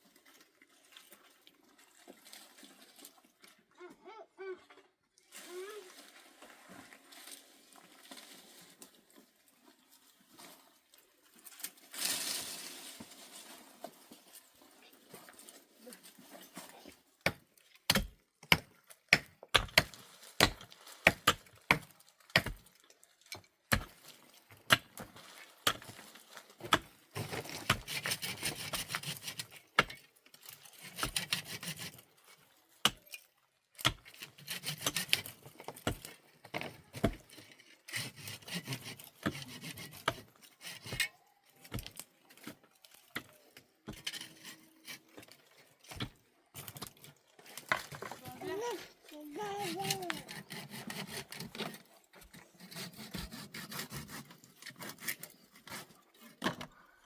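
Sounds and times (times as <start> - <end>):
rasping and scraping on wood: 26.6 - 32.0, 33.8 - 36.1, 37.0 - 41.9, 43.2 - 46.1, 47.6 - 56.5.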